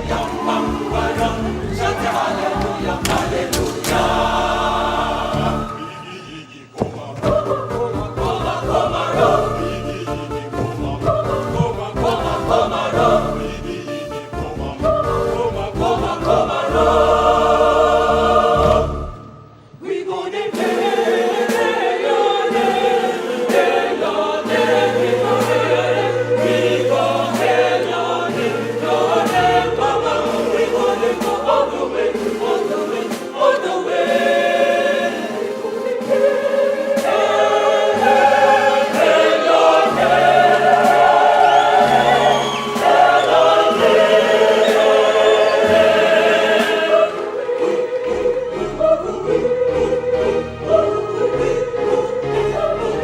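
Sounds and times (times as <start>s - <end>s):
choir singing in harmony: 0.0s - 53.0s
deep bass notes: 7.3s - 19.2s.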